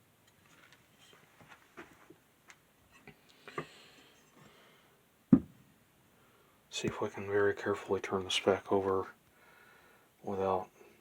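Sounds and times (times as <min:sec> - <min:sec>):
soft rustle: 0:00.3 - 0:03.1.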